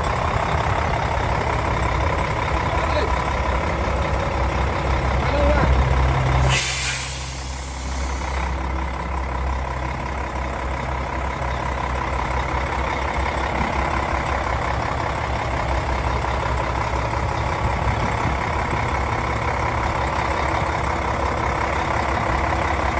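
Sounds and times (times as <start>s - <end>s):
diesel engine idling: 0.0s - 22.9s
loud hiss of air: 6.4s - 8.6s.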